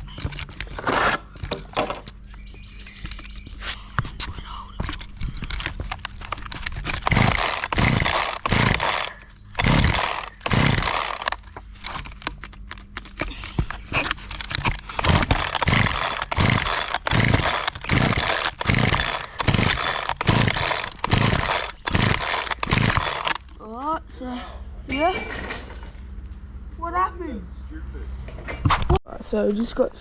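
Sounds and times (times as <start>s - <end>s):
chainsaw starter rope pulls: 5.0s - 23.6s
chainsaw engine cranking: 5.1s - 23.6s.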